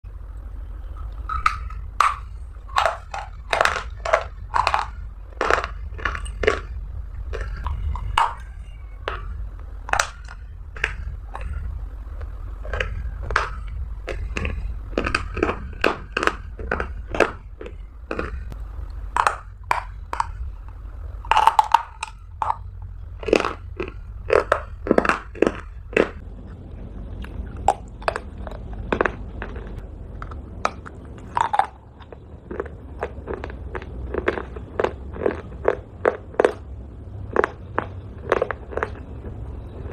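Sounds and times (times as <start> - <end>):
steady low hum: 0.0 - 39.9
crunchy biting and chewing: 0.1 - 39.9.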